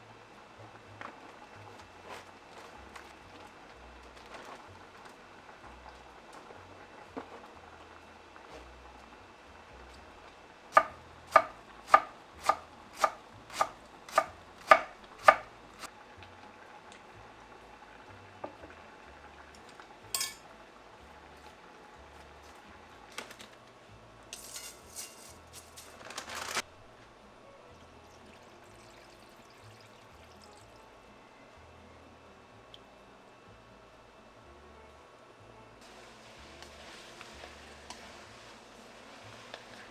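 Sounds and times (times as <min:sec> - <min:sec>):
kitchen clatter: 0:10.8 - 0:15.5, 0:20.0 - 0:20.5, 0:24.3 - 0:26.7
knife chopping on cutting board: 0:10.8 - 0:15.5
scraping: 0:24.4 - 0:26.6.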